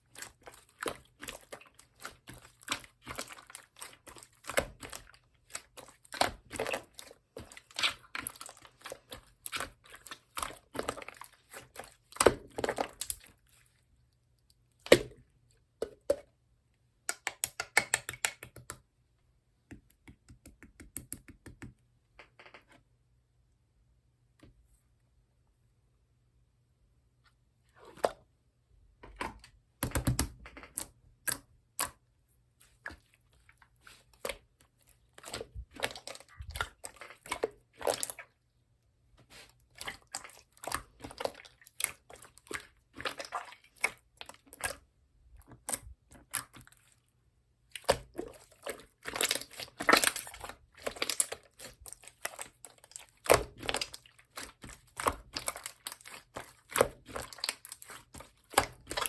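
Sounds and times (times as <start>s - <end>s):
slime popping and crackling: 47.8s - 59.0s.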